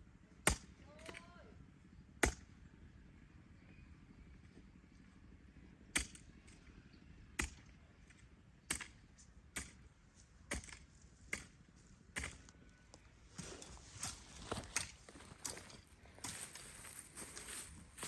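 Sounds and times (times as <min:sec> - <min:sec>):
sharp chopping strikes: 0:02.2 - 0:02.4, 0:09.6 - 0:09.8, 0:10.5 - 0:11.6, 0:12.2 - 0:12.4.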